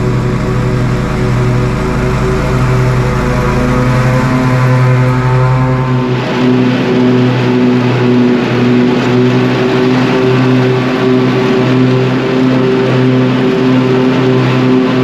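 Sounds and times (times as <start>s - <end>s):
lawn tractor engine mowing: 0.0s - 15.0s.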